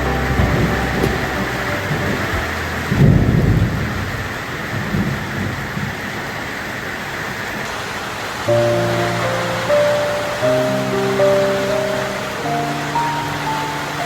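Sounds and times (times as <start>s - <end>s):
thunder rumbling: 0.0s - 6.4s
steady rain falling: 0.0s - 14.0s.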